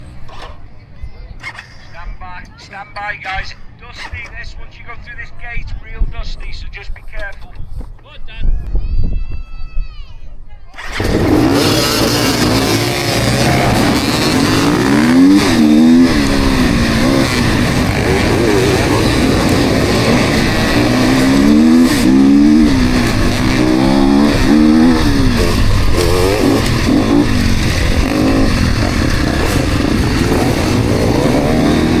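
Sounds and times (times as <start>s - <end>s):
motorcycles revving and accelerating: 10.8s - 32.0s.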